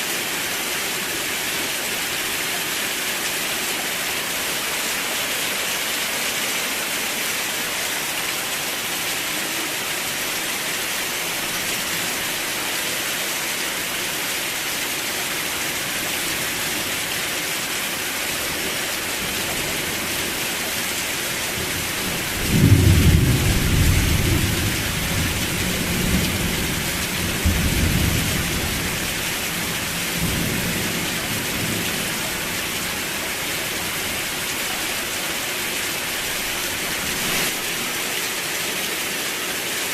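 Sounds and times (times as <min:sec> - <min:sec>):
heavy rain hissing: 0:00.0 - 0:39.9
thunder rumbling: 0:22.4 - 0:28.6.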